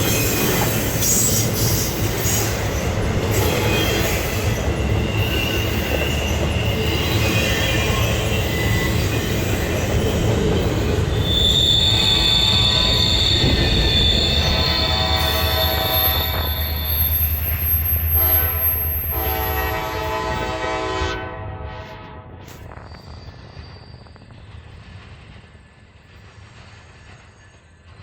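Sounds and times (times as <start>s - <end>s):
freight train rumbling past: 0.0s - 28.0s
high-pitched wheel squeal: 3.3s - 20.4s, 22.5s - 24.7s.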